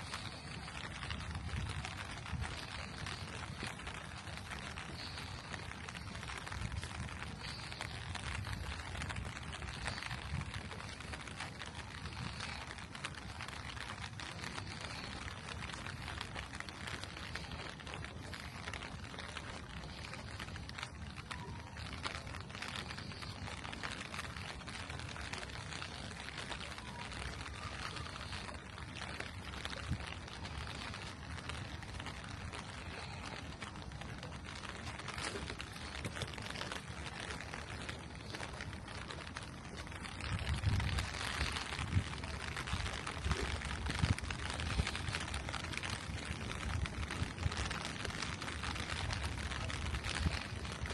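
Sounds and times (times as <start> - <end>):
low background rumble: 0.0 - 50.9
rain falling on street: 0.0 - 50.9.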